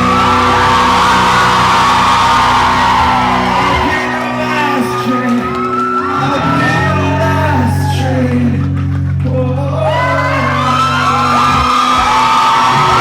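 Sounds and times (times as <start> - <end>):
audience whooping and shouting: 0.0 - 8.7, 9.7 - 13.0
live rock band playing: 0.0 - 13.0
person singing: 3.2 - 13.0.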